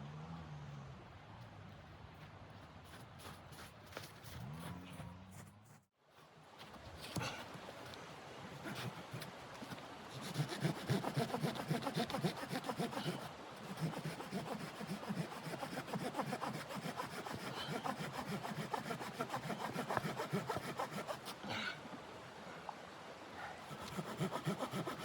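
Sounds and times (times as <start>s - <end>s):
hand saw cutting wood: 8.6s - 21.7s, 23.6s - 25.0s.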